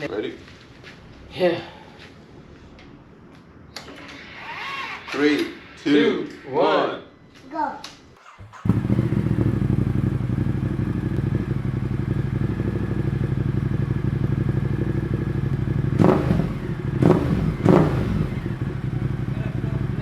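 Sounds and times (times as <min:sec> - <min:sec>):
motorcycle engine starting and idling: 0:08.2 - 0:20.0
motorcycle throttle blips: 0:08.2 - 0:20.0.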